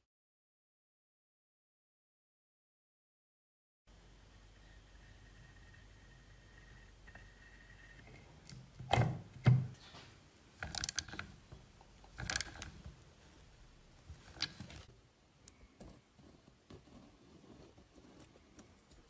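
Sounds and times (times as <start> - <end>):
metallic clicking: 10.6 - 11.3, 12.0 - 12.8.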